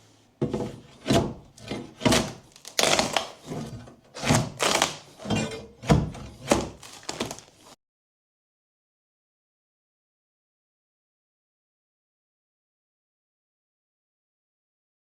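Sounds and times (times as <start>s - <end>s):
heavy wooden thuds: 5.8s - 7.5s.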